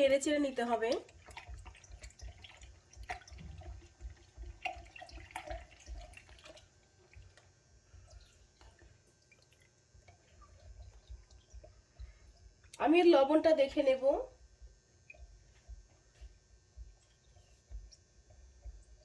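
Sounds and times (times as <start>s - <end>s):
liquid sloshing: 0.0s - 7.5s.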